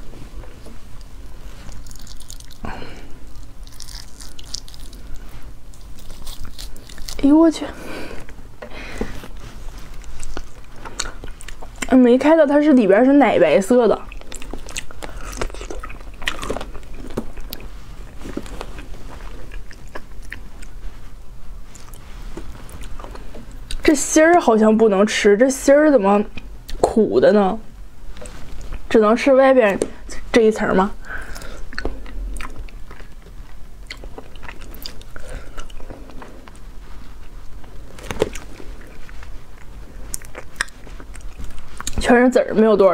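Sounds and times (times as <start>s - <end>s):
person chewing soft fruit: 0.0s - 12.0s, 14.0s - 23.9s, 28.1s - 28.9s, 31.0s - 42.0s.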